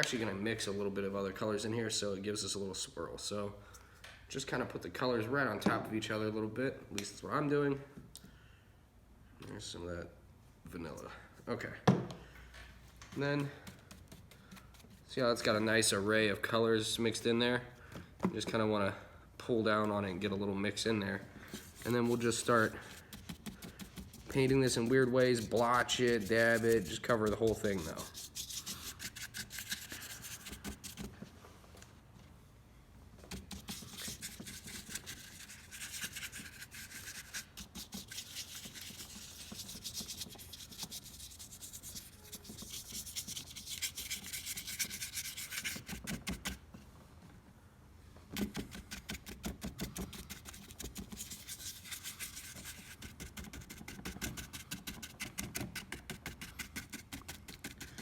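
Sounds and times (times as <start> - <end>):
paintbrush scratchy strokes: 21.4 - 31.1, 33.3 - 46.5, 49.8 - 58.0.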